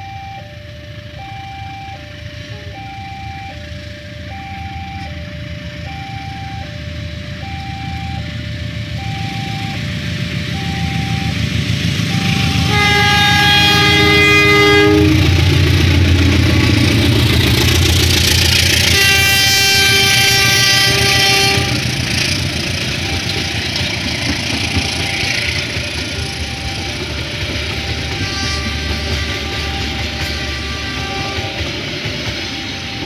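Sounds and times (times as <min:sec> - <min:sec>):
heavy locomotive engine rumble: 0:00.0 - 0:33.0
level-crossing warning tone: 0:00.0 - 0:33.0
carriages rolling over rails: 0:09.6 - 0:33.0
locomotive horn blasts: 0:12.0 - 0:33.0.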